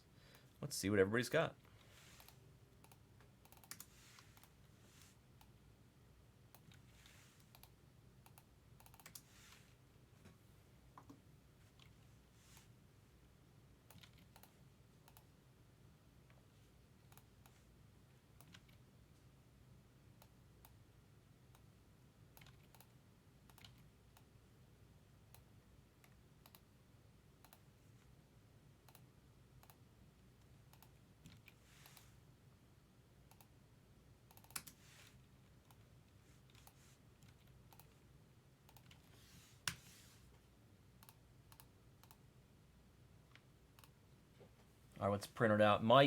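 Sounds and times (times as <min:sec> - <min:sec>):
mouse and keyboard clicks: 0:02.2 - 0:04.6, 0:06.5 - 0:09.3, 0:13.9 - 0:15.3, 0:18.4 - 0:18.8, 0:22.3 - 0:24.3, 0:25.3 - 0:26.7, 0:30.7 - 0:32.1, 0:34.3 - 0:34.8, 0:35.7 - 0:38.0, 0:38.7 - 0:39.9.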